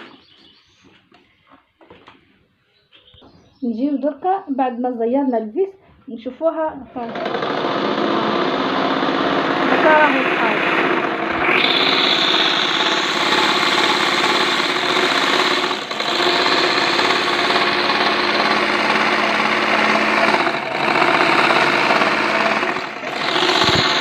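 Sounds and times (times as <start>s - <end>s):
sewing machine stitching: 7.0s - 24.0s.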